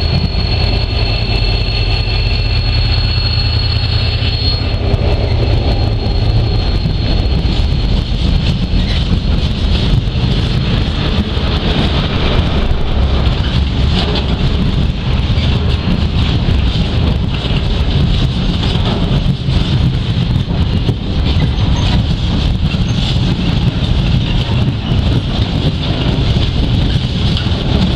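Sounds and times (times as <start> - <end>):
thin high whine: 0.0 - 9.4
diesel locomotive engine: 0.0 - 27.9
wind buffeting microphone: 0.0 - 27.9.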